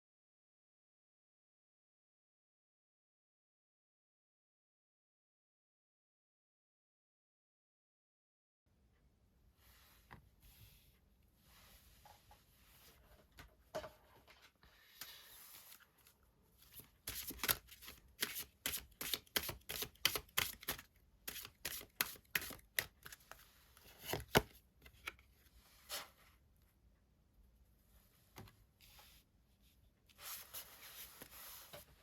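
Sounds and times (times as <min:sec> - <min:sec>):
cards snapping while shuffled: 0:17.1 - 0:23.2.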